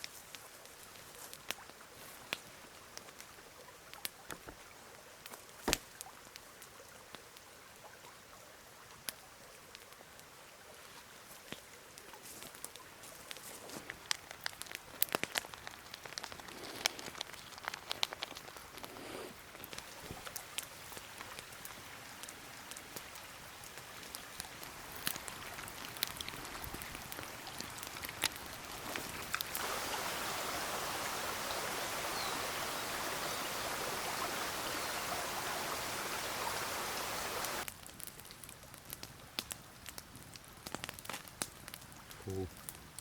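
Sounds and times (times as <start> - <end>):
rush of water: 0.9 - 37.7
faint hiss: 14.9 - 37.6.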